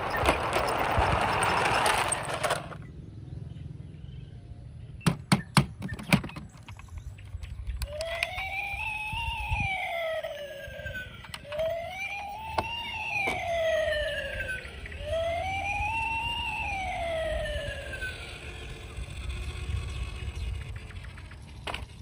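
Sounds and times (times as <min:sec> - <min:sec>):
toy electronic siren wailing: 0:07.7 - 0:22.0.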